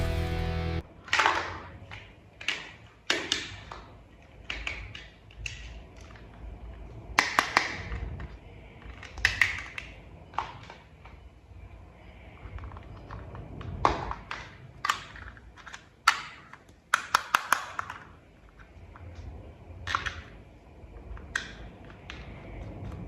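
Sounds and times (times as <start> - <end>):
plastic toy parts clicking: 1.0 - 11.2, 12.5 - 19.0, 19.8 - 22.4.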